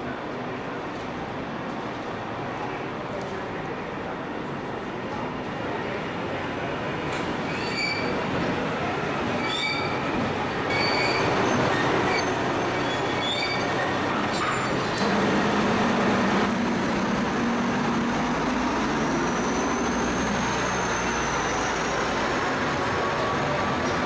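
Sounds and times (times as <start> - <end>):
locomotive engine hum: 4.2 - 24.0
train wheels rumbling on rails: 6.3 - 24.0
high wheel squeals: 7.4 - 8.3, 9.3 - 15.1, 18.2 - 22.5.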